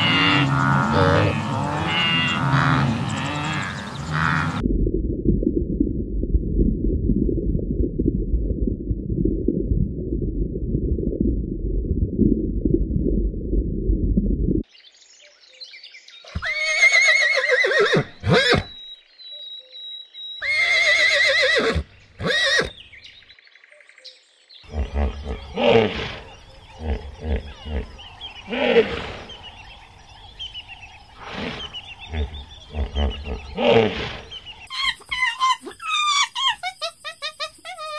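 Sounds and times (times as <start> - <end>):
low dense rumbling: 0.0 - 14.6, 26.2 - 33.6
horse whinnying: 16.3 - 18.8, 20.4 - 22.8, 31.2 - 36.6.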